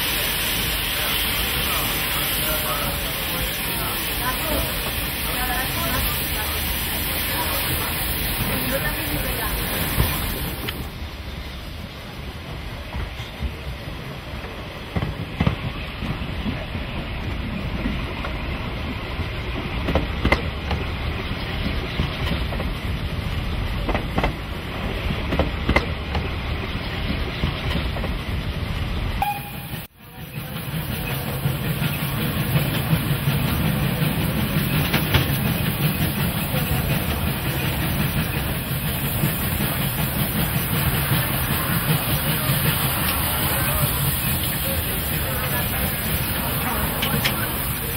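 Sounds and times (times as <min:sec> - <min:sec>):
steam train rumble and hiss: 0:00.0 - 0:47.9
train wheels clicking on rail joints: 0:12.7 - 0:29.2, 0:30.2 - 0:47.9.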